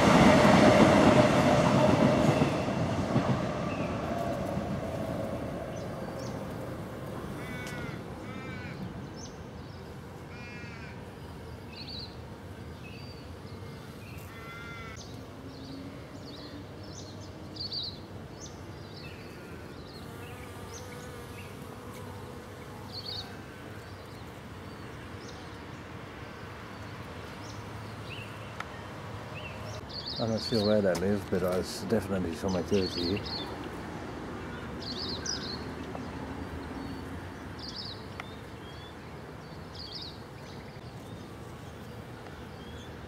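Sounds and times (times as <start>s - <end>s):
passing train rumble: 0.0s - 9.6s, 28.8s - 41.3s
birds calling with falling pitch: 29.7s - 33.6s.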